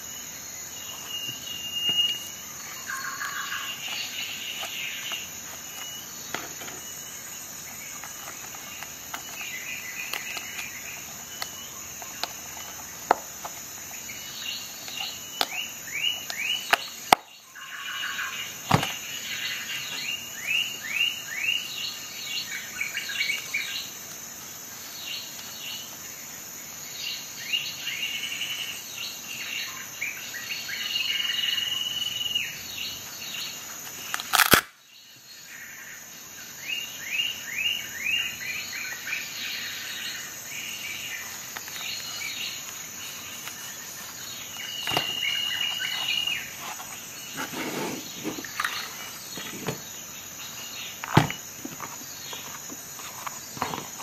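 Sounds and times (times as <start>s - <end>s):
birds chirping: 0.0s - 24.0s, 36.6s - 54.0s.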